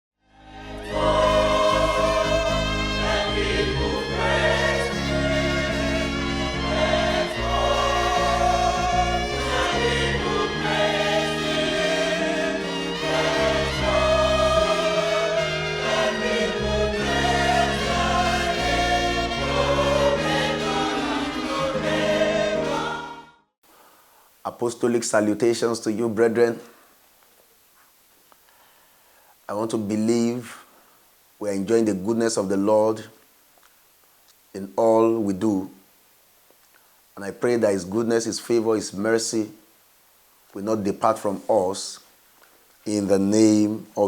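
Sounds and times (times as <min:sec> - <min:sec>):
gospel choir singing: 0:00.3 - 0:23.4
instrumental accompaniment: 0:00.5 - 0:23.3.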